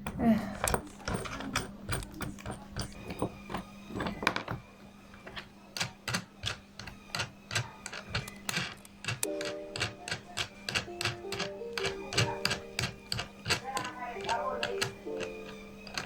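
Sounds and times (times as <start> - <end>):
flower press clicks and taps: 5.3 - 16.0
background music: 9.2 - 16.0.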